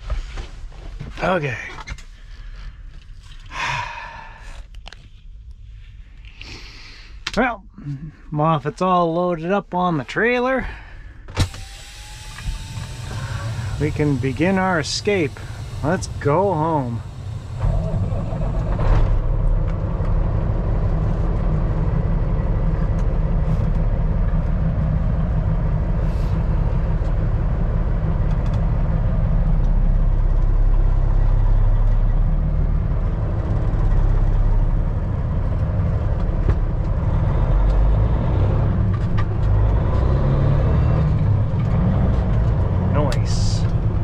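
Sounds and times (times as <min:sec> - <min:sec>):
truck diesel engine rumble: 0:09.4 - 0:44.0.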